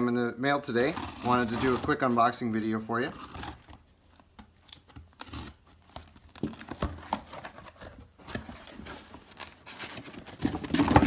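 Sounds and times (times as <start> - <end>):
packaging rustling and crinkling: 3.2 - 11.0
packaging clatter: 6.4 - 11.0.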